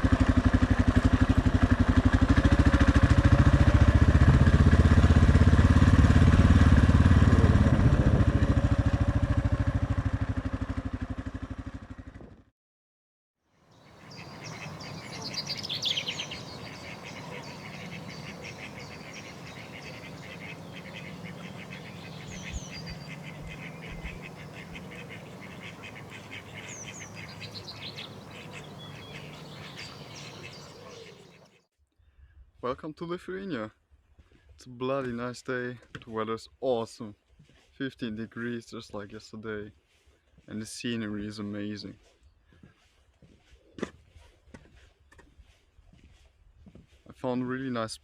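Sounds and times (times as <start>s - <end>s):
motorcycle engine running: 0.0s - 12.5s, 13.9s - 31.4s
birds chirping: 13.7s - 31.6s.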